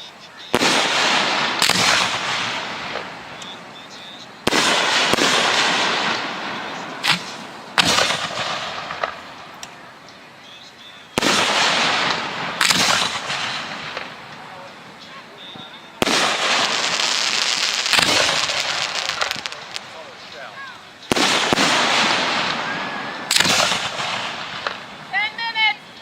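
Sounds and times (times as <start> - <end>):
firework shell bangs: 0.6 - 3.5, 4.4 - 9.6, 11.2 - 14.5.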